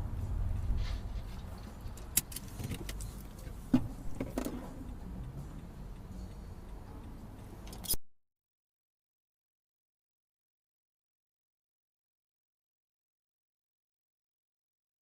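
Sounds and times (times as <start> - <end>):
car rumbling: 0.0 - 8.0.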